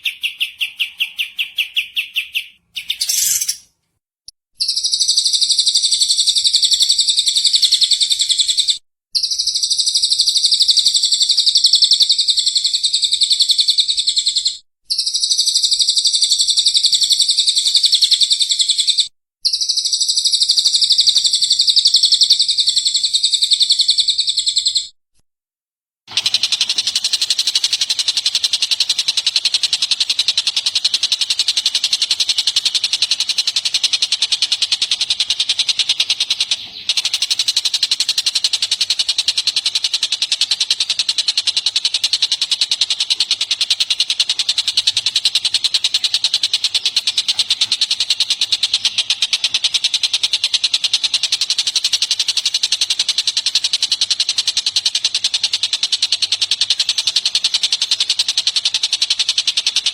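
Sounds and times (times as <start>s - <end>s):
songbird rapid high trill: 0.0s - 3.7s.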